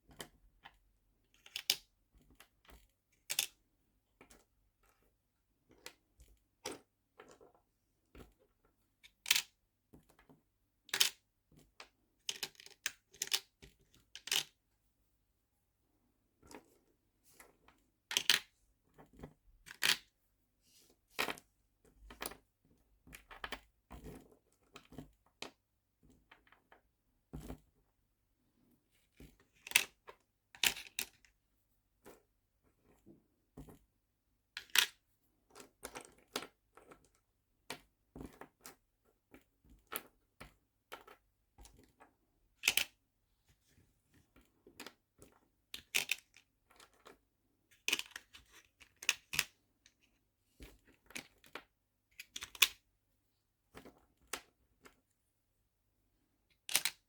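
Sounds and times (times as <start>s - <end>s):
small plastic items clicking and tapping: 1.4s - 3.6s, 9.0s - 14.6s, 17.5s - 20.1s, 29.2s - 31.3s, 34.6s - 43.0s, 44.6s - 52.8s, 56.5s - 57.0s.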